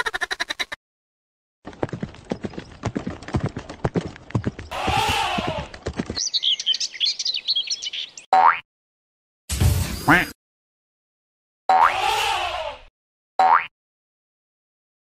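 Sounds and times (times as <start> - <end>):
cartoon clip-clop footsteps: 1.6 - 6.4
high bird-like chirping: 6.1 - 8.3.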